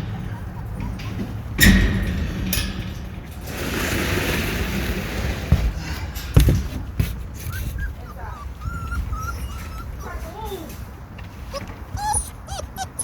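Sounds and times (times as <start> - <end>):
sharp knocks and thumps: 0.0 - 7.6
puppy whimpering: 7.4 - 13.0.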